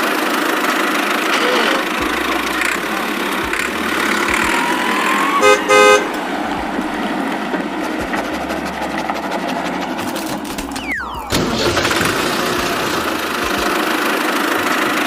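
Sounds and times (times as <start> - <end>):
engine-like running noise: 0.0 - 15.0
toy tractor horn tooting: 1.3 - 6.1.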